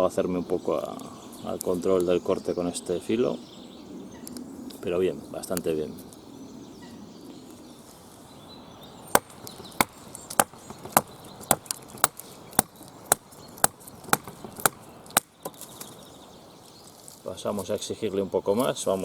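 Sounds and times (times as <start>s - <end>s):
sharp knocks on wood: 9.1s - 15.6s.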